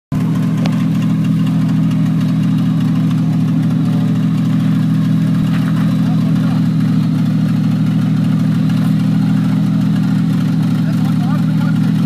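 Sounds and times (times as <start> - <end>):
truck engine idling: 0.1 - 12.0.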